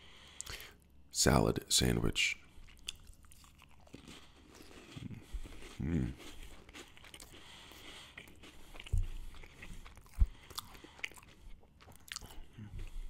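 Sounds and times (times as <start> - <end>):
cracker crunching while chewing: 2.6 - 12.6.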